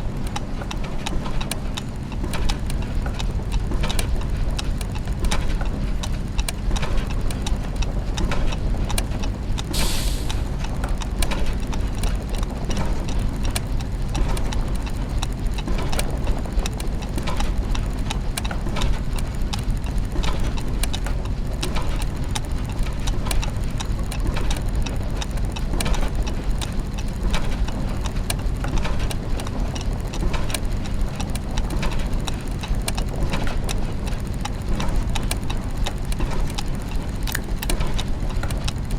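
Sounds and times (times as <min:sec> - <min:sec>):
gears and ratchets ticking: 0:00.0 - 0:38.9
low mechanical hum: 0:00.0 - 0:38.9
short hiss: 0:09.7 - 0:10.4.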